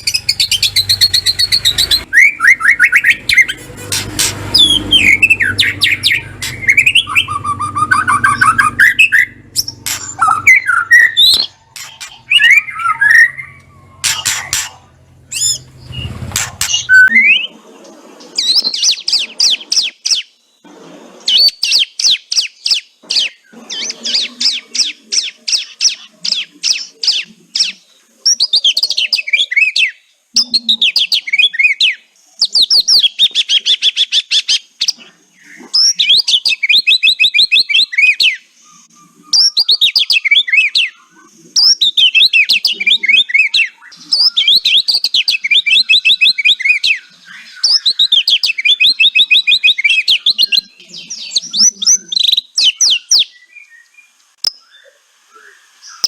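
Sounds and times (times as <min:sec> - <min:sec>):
low hum: 0:00.0 - 0:17.1
rapid high falling chatter notes: 0:00.0 - 0:17.1
bird whistling phrases: 0:00.0 - 0:17.6.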